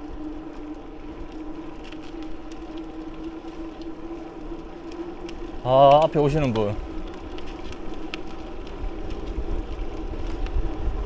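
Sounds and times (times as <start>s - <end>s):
bicycle rolling on pavement: 0.0s - 11.0s
faint clicks: 0.5s - 10.8s.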